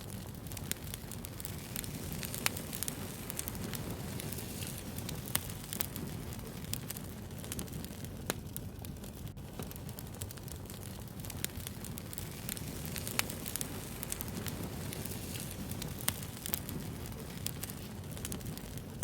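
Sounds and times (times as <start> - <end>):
bonfire crackling and popping: 0.0 - 19.0.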